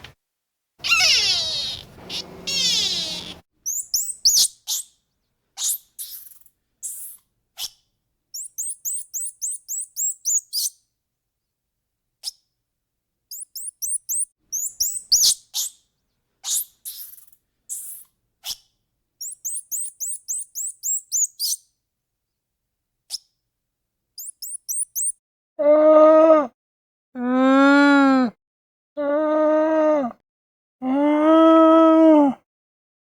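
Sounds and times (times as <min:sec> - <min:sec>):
lower falling bird call: 0:00.8 - 0:04.5
small birds chirping: 0:00.8 - 0:05.0, 0:05.6 - 0:07.7, 0:08.4 - 0:10.8, 0:13.3 - 0:15.8, 0:16.4 - 0:21.6, 0:24.2 - 0:25.2.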